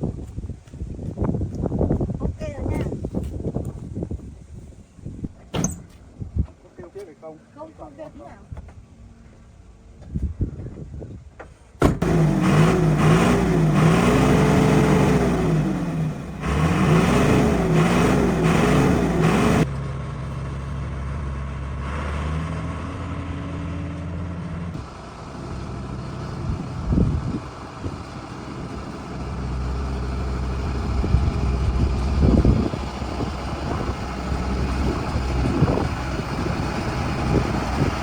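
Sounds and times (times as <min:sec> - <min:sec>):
diesel truck engine revving: 0:11.8 - 0:38.0.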